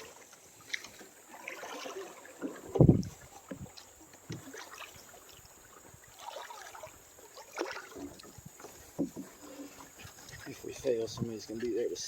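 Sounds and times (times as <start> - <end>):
paddle splashes: 0.0 - 12.0
soft thumps: 8.7 - 9.4.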